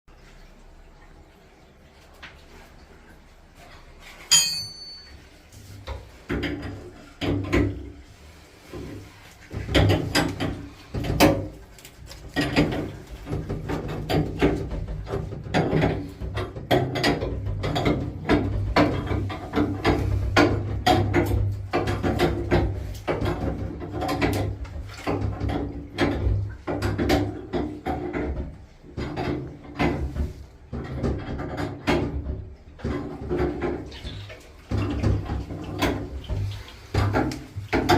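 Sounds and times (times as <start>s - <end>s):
clanks and knocks on pipes: 3.6s - 37.9s
ringing metal clink: 4.3s - 5.2s.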